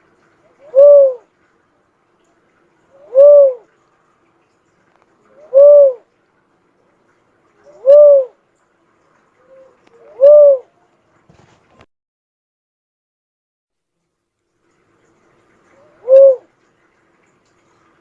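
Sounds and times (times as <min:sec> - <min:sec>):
dove cooing: 0:00.4 - 0:01.3, 0:03.0 - 0:03.8, 0:05.3 - 0:06.0, 0:07.6 - 0:08.4, 0:09.4 - 0:10.8, 0:15.8 - 0:16.5.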